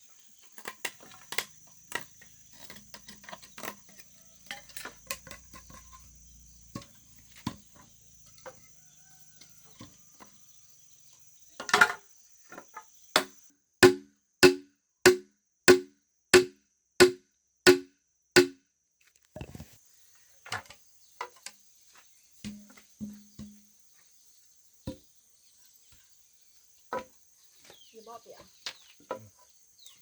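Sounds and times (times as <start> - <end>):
hollow knocks on bamboo: 11.6 - 18.6, 22.4 - 23.7.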